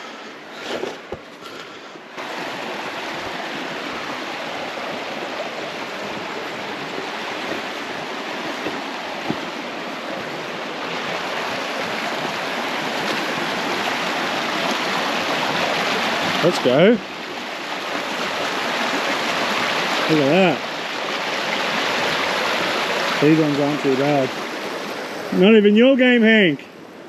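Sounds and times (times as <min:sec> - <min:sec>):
river water rushing over rocks: 0:02.0 - 0:25.5.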